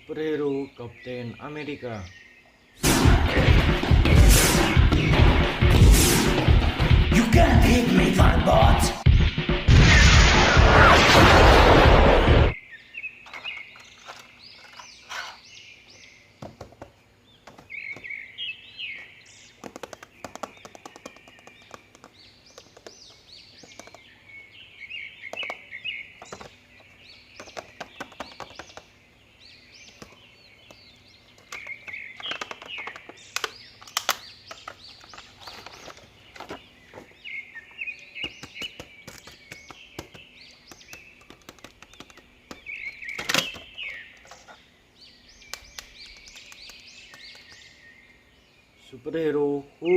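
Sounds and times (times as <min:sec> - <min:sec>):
small birds chirping: 0:00.0 - 0:02.8, 0:12.5 - 0:49.9
sharp clicks and taps: 0:19.6 - 0:24.0, 0:38.3 - 0:42.7, 0:45.5 - 0:47.7.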